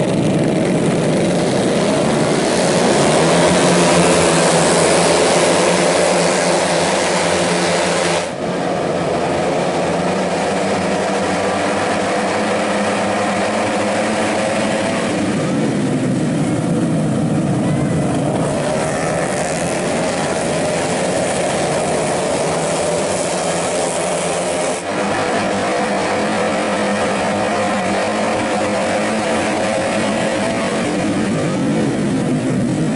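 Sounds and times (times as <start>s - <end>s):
scooter race engines passing: 0.0s - 32.9s.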